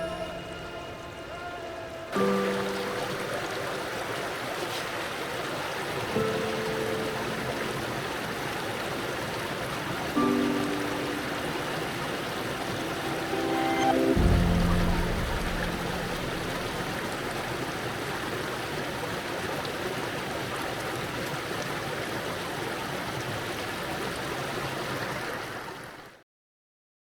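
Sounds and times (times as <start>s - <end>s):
creek water rushing: 0.0s - 26.2s
low rumble: 13.4s - 17.9s.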